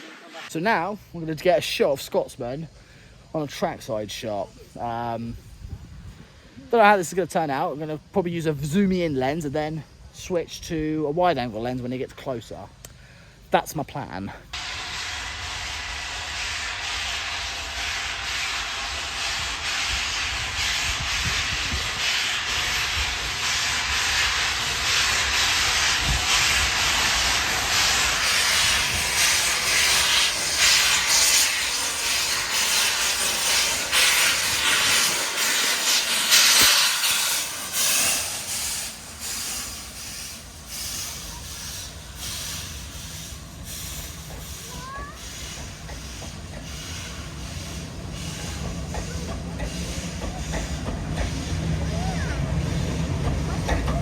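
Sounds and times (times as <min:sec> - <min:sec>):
loud steady steam hiss: 0:00.0 - 0:54.0
steam locomotive passing: 0:00.0 - 0:54.0.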